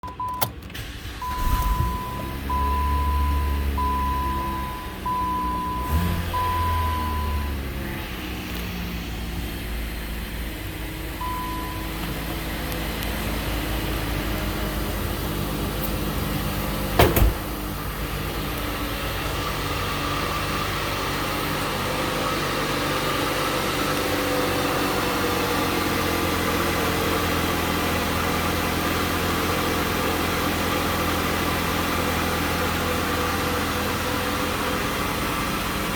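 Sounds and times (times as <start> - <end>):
car engine revving and idling: 0.0 - 35.9
warning chime beeping: 1.2 - 7.6, 11.2 - 12.0.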